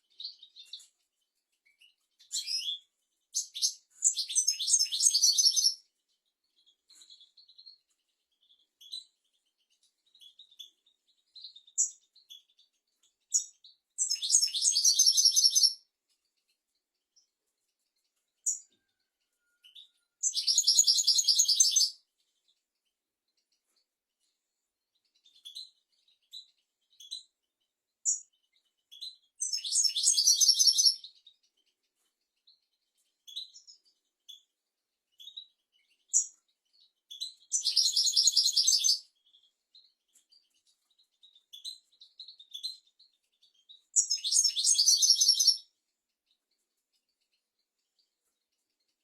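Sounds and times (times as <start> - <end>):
goldfinch twittering and trilling: 1.6 - 2.8, 3.4 - 5.8, 13.3 - 15.8, 19.6 - 22.0, 25.2 - 27.2, 28.1 - 31.7, 32.5 - 34.4, 35.2 - 45.7.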